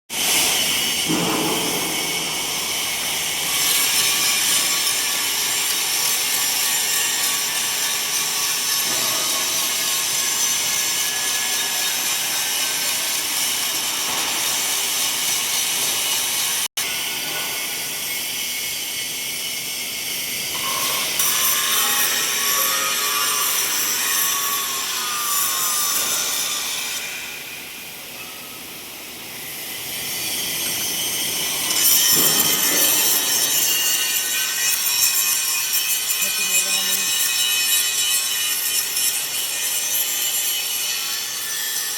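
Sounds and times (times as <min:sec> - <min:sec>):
angle grinder grinding metal: 0:00.2 - 0:27.5, 0:29.4 - 0:41.9.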